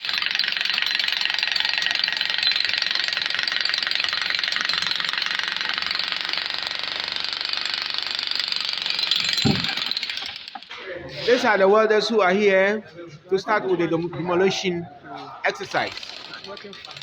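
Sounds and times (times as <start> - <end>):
jackhammer hammering concrete: 0.0 - 10.7, 15.8 - 17.0.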